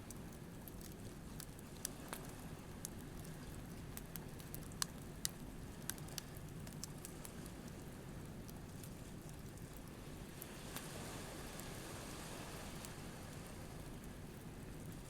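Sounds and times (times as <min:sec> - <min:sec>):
campfire crackling and popping: 0:00.0 - 0:11.7.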